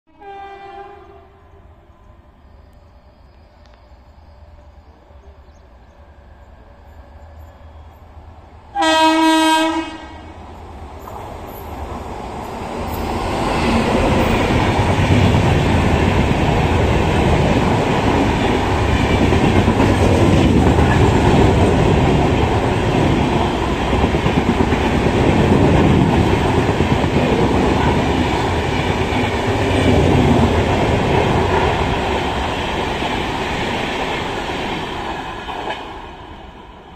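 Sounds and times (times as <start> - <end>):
locomotive horn blast: 0.1 - 1.4, 8.7 - 10.4
train wheels rumbling on rails: 1.0 - 36.9.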